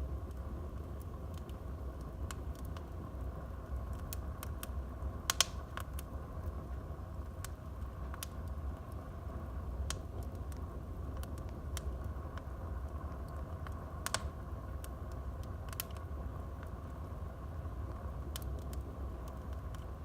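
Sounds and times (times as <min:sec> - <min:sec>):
low fire rumble: 0:00.0 - 0:20.0
wood fire crackling and popping: 0:00.0 - 0:20.0.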